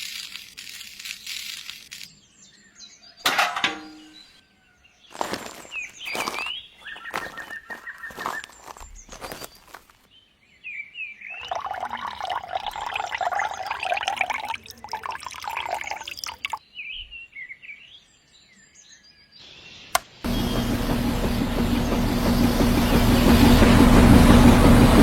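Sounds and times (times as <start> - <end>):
birds chirping: 0.9 - 24.4
pouring splashing water: 11.4 - 16.6
sharp click: 19.9 - 20.2
small motor humming: 20.3 - 25.0.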